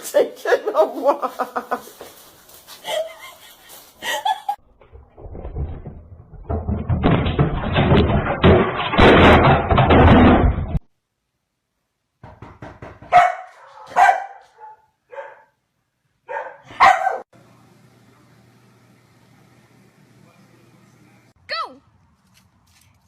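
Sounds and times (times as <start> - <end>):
loud rustling or scuffling: 0.0 - 4.6
dog barking: 13.1 - 15.6, 16.2 - 17.3.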